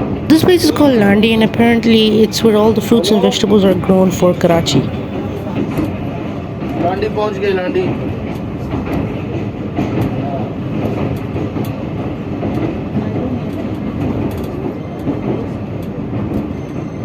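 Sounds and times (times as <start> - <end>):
train rumbling on track: 4.9 - 17.0.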